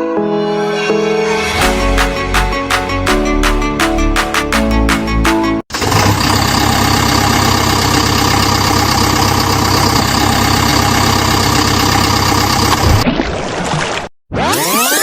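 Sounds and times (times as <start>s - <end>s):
music: 0.0s - 5.6s
heavy engine idling: 5.8s - 12.8s.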